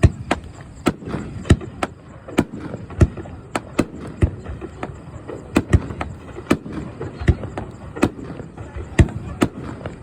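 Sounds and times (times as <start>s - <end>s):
fireworks bursting with sharp bangs: 0.0s - 10.0s.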